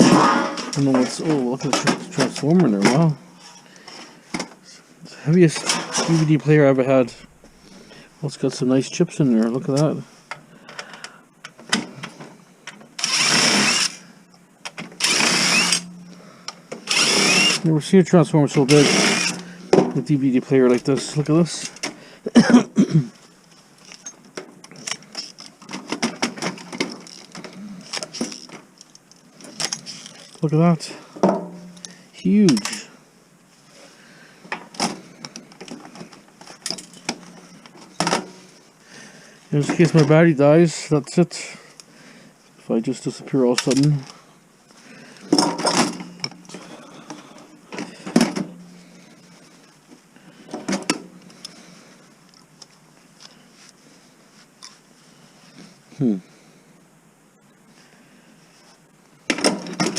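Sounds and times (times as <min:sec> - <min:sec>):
metal and plastic parts clicking: 0:43.6 - 0:44.2.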